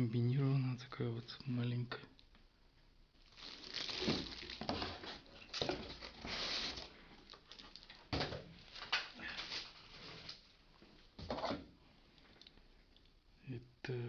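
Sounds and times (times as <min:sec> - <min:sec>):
packaging rustling and crinkling: 0:03.2 - 0:10.5.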